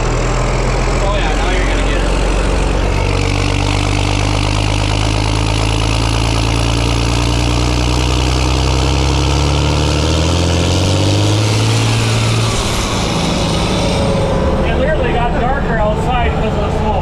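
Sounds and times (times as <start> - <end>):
large farm engine revving: 0.0 - 17.0.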